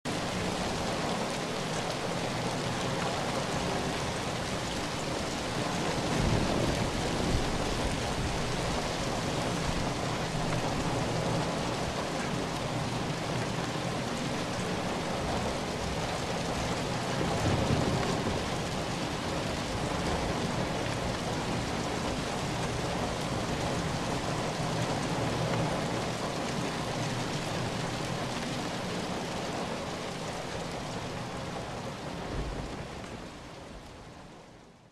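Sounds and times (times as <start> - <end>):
steady rain falling: 0.1 - 34.9
thunder rumbling: 16.6 - 22.1.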